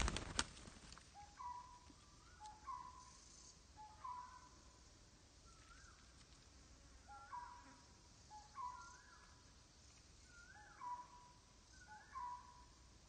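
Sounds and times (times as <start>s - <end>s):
loud rustle: 0.0s - 1.0s
bird calling: 1.1s - 4.8s, 5.4s - 6.2s, 7.0s - 9.4s, 10.2s - 12.8s.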